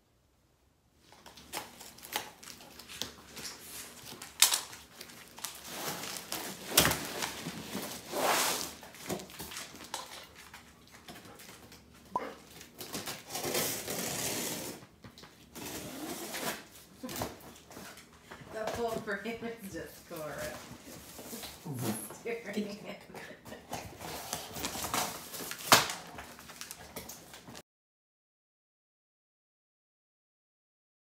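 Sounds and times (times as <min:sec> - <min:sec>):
cardboard tearing and rustling: 0:01.2 - 0:10.4, 0:12.4 - 0:17.7, 0:23.8 - 0:27.6
cardboard rasping: 0:12.9 - 0:14.8.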